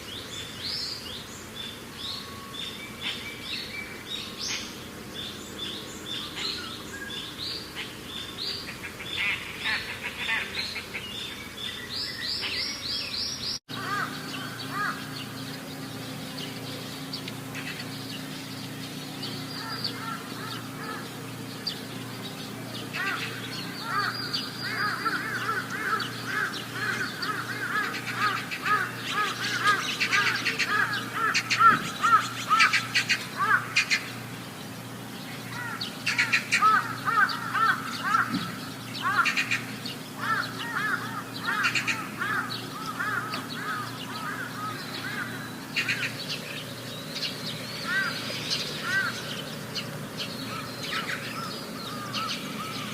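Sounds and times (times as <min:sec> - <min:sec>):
birds chirping: 0:00.0 - 0:52.9
steady low hum: 0:00.0 - 0:52.9.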